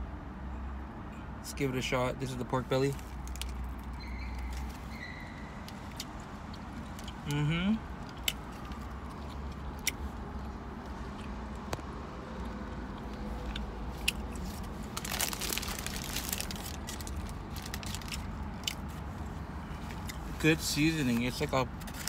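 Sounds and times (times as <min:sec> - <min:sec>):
crunchy crackling: 0:02.9 - 0:05.0, 0:05.6 - 0:19.3
man chewing: 0:05.7 - 0:11.7, 0:12.3 - 0:20.3.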